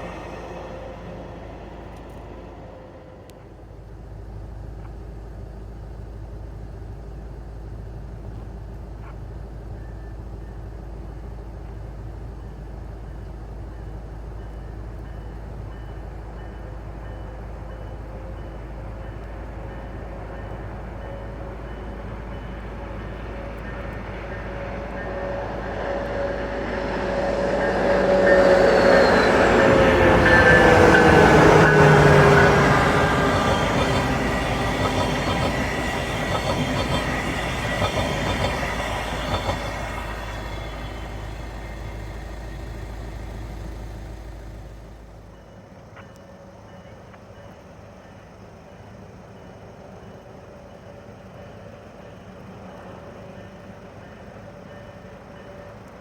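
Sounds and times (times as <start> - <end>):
steady tone sliding down: 0.0 - 3.9, 23.8 - 45.2
train rumbling: 0.0 - 56.0.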